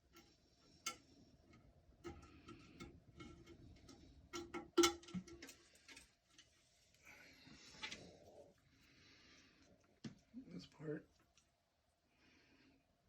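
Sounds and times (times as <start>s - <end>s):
toilet tank parts clicking and knocking: 0.0s - 6.1s.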